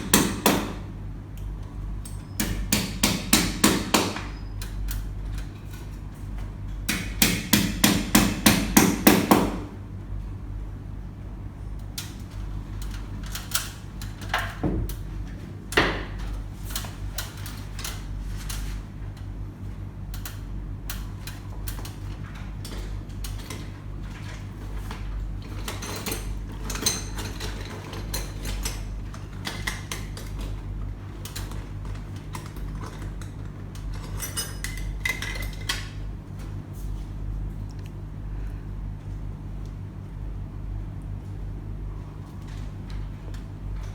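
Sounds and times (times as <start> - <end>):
steady low hum: 0.0 - 43.9
metal tools clinking: 33.9 - 35.7.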